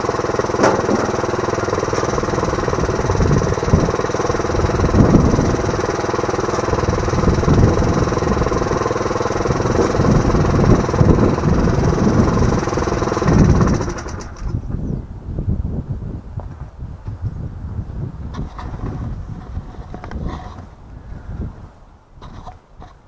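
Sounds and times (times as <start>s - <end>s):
small engine running: 0.0s - 14.7s.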